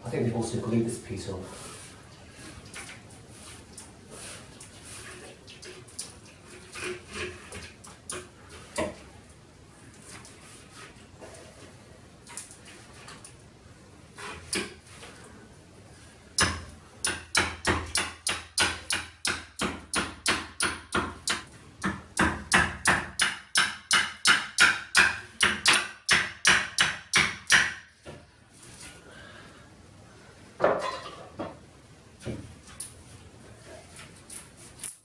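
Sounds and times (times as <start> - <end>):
hammer striking: 16.4 - 27.8.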